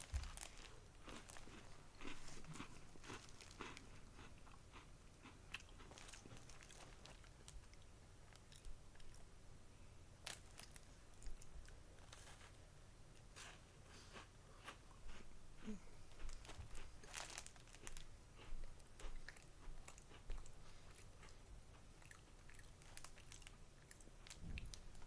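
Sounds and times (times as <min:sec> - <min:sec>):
biscuit crunching: 0:00.0 - 0:07.8, 0:16.2 - 0:18.1.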